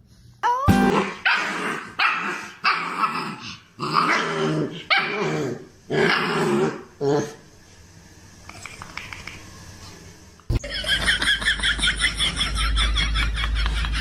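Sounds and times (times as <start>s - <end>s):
dog growling: 0.9s - 7.4s.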